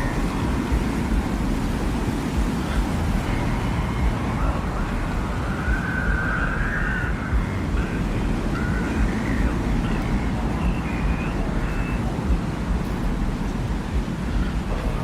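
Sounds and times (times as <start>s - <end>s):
low rumbling wind: 0.0s - 15.0s
faint thin whistling tones: 2.4s - 12.4s.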